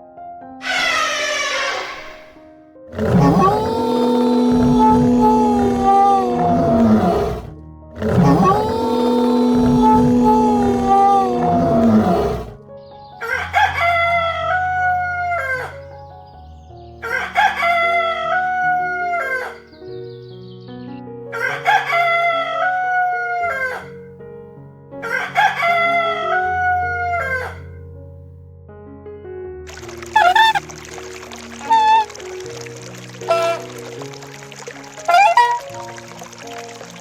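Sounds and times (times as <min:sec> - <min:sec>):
loud held animal call: 0:00.6 - 0:12.6, 0:13.2 - 0:15.9, 0:17.0 - 0:19.7, 0:21.4 - 0:24.0, 0:25.0 - 0:27.7, 0:29.8 - 0:32.4, 0:33.2 - 0:34.1, 0:35.0 - 0:36.0
rooster crowing: 0:00.6 - 0:12.6, 0:13.2 - 0:15.8, 0:17.0 - 0:19.6, 0:21.4 - 0:24.0, 0:25.0 - 0:27.7, 0:30.2 - 0:30.6, 0:33.3 - 0:33.7, 0:35.1 - 0:35.6
background music: 0:00.6 - 0:28.6, 0:29.7 - 0:37.0.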